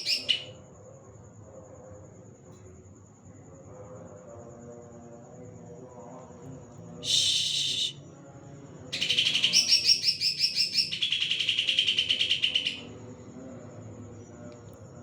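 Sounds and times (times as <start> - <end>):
bird singing fast trill: 0.0 - 0.6, 9.0 - 12.9.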